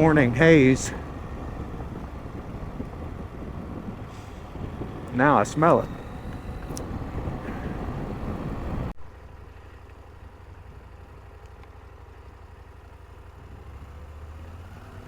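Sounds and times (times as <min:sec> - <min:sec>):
wind noise: 0:00.0 - 0:08.9
motorcycle engine running: 0:00.0 - 0:14.1.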